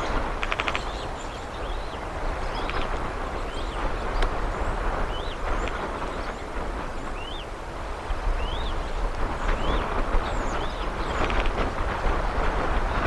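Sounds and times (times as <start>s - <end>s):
outdoor rush with low rumble: 0.0s - 13.0s
rattle of clicks: 11.1s - 11.7s.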